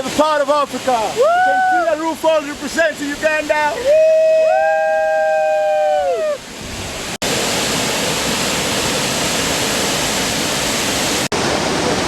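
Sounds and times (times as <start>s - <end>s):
waterfall rushing: 0.0s - 12.0s
two voices woo-ing: 1.2s - 2.0s, 3.7s - 6.4s.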